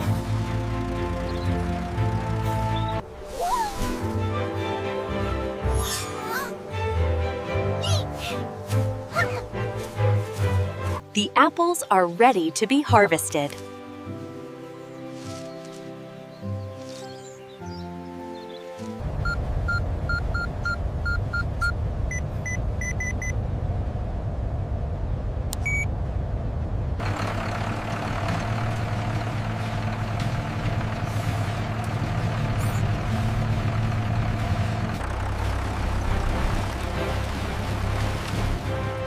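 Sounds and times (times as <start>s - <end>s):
tractor engine running: 0.0s - 3.2s, 18.8s - 39.0s
rushing noise with hum: 19.0s - 27.1s.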